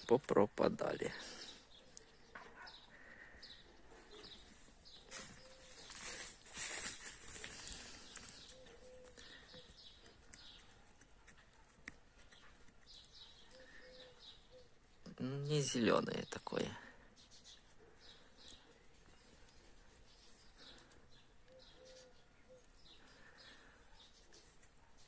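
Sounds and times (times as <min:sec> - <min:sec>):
small birds chirping: 0:00.0 - 0:25.0
rustling: 0:04.2 - 0:13.7.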